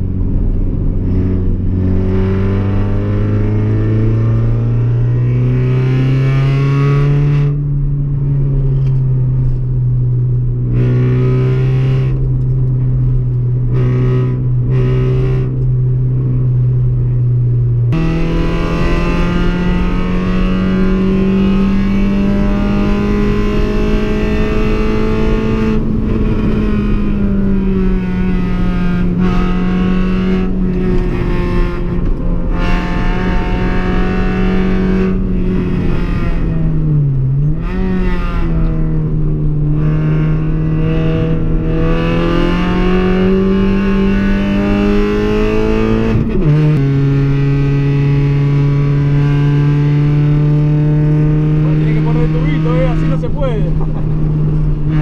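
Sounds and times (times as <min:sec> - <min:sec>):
car engine at high revs: 0:00.0 - 0:55.0.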